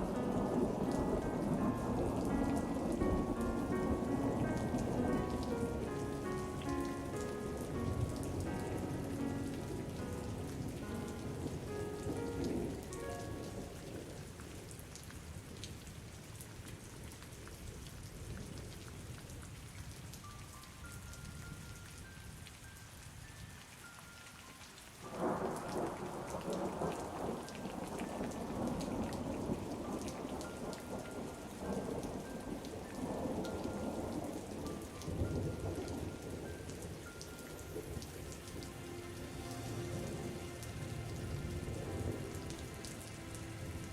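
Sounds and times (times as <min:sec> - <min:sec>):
rolling thunder: 0:00.0 - 0:06.9
faint melody notes: 0:00.0 - 0:14.5, 0:29.8 - 0:43.9
rain falling: 0:00.0 - 0:43.9.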